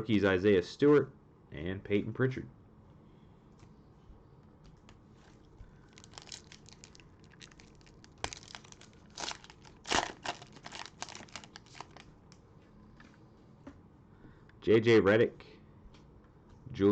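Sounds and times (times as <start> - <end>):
plastic wrapper crinkling and tearing: 5.8 - 12.1.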